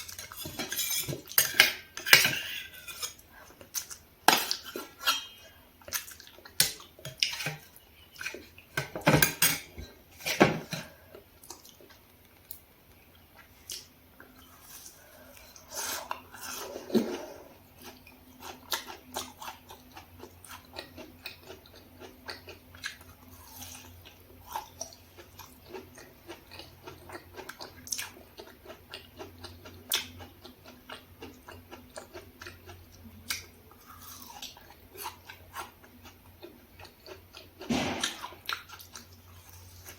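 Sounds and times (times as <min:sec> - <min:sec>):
chewing close-up: 0:13.0 - 0:39.9.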